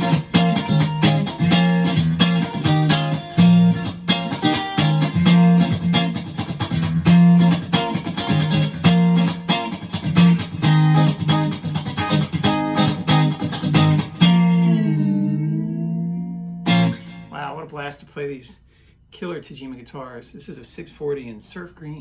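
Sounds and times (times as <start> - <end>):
electric guitar through amp: 0.0 - 17.4.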